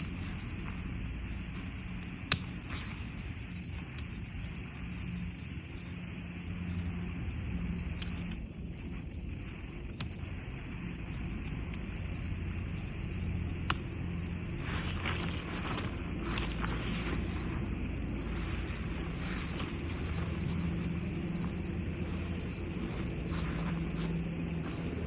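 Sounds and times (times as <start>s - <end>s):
crickets chirping: 0.0s - 25.0s
sharp clicks: 1.7s - 3.1s, 13.6s - 14.0s.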